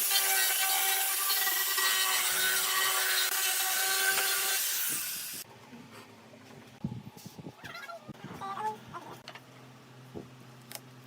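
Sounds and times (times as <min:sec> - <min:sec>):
power tool cutting wood: 0:00.0 - 0:05.4.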